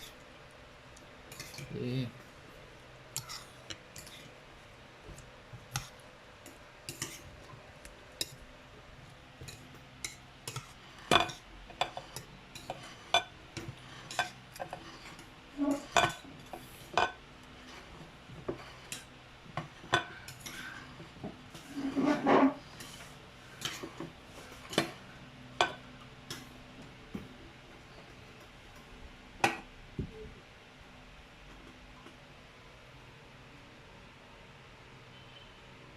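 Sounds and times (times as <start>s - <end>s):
cutlery clinking on a plate: 9.4s - 14.8s, 15.7s - 17.2s.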